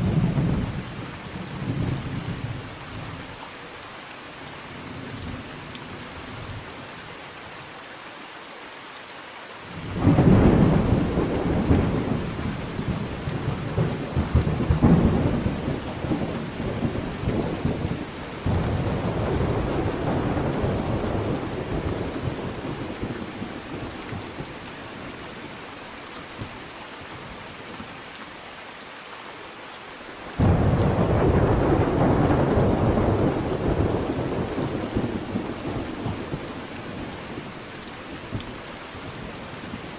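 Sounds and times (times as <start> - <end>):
steady rain: 0.0 - 39.9
thunder rumbling: 9.9 - 24.5, 30.4 - 37.5.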